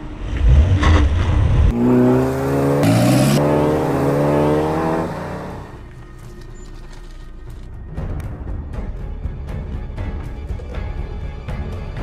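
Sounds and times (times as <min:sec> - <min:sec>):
car engine accelerating hard: 0:00.3 - 0:05.8.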